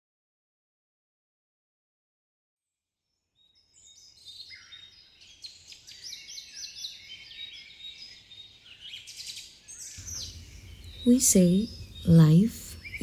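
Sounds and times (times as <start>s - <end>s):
songbirds chirping and whistling: 3.6s - 13.0s
faint low background hum: 10.0s - 13.0s.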